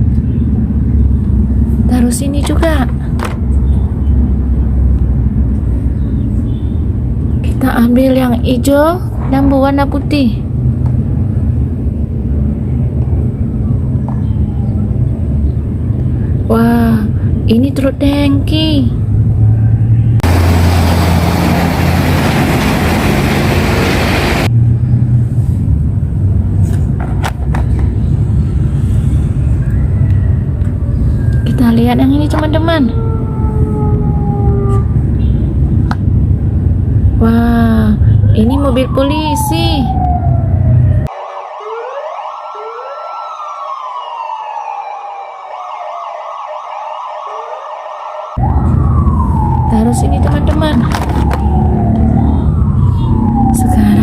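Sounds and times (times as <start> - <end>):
steady low rumble: 0.0 - 27.0, 27.7 - 38.8
police siren wailing: 29.3 - 35.2, 38.3 - 54.0.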